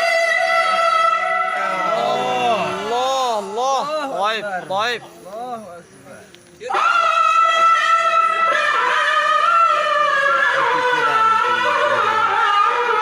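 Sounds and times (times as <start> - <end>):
person reciting melodically: 0.5 - 13.0.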